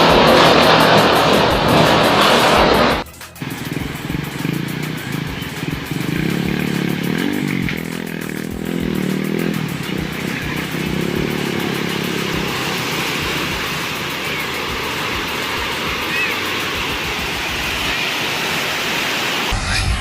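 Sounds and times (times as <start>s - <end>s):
motor engine running: 0.0s - 18.0s.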